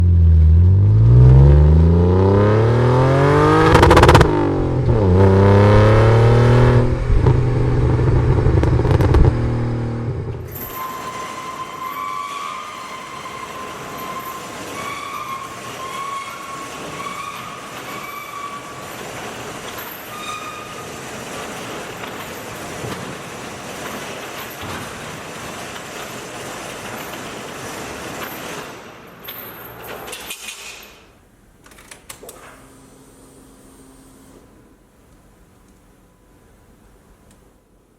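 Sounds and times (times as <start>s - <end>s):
car engine accelerating hard: 0.0s - 10.5s.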